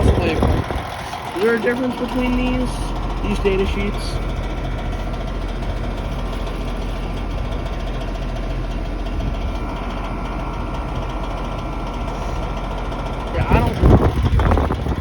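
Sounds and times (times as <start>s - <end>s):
air conditioner unit humming: 0.0s - 15.0s
fan motor grinding rattle: 0.0s - 15.0s.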